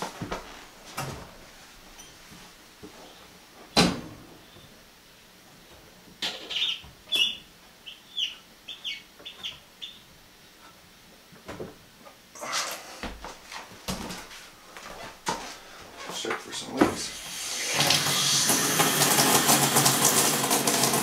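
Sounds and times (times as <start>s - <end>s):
bird chirping: 6.3s - 10.1s.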